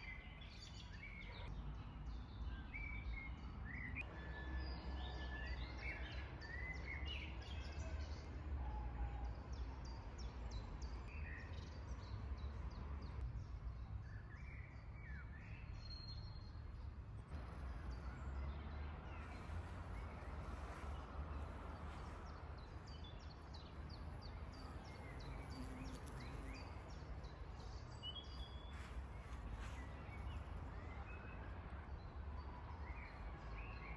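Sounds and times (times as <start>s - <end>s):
songbirds singing: 9.4s - 33.9s.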